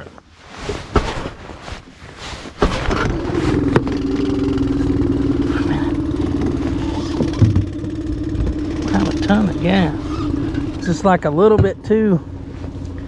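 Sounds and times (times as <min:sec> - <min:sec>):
outboard motor starting and idling: 0:02.6 - 0:13.0.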